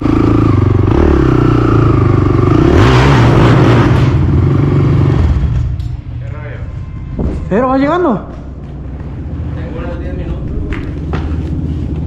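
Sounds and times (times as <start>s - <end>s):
atv engine revving: 0.0s - 5.8s.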